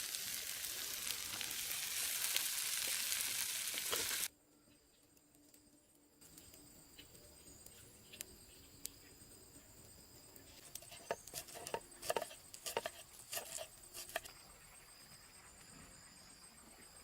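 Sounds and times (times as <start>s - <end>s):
light knocks and scrapes: 10.5s - 14.3s.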